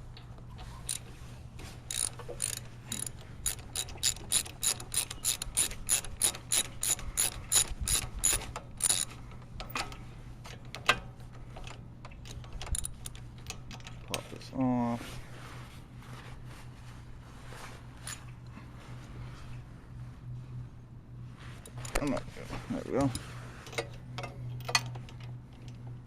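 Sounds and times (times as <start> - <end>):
ratchet wrench clicking: 1.9 - 9.1, 12.2 - 13.9.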